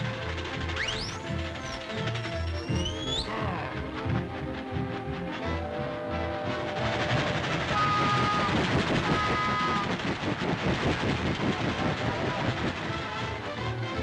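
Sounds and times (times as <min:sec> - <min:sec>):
train wheels clattering: 0:00.0 - 0:14.0
high train whistle: 0:05.4 - 0:10.0.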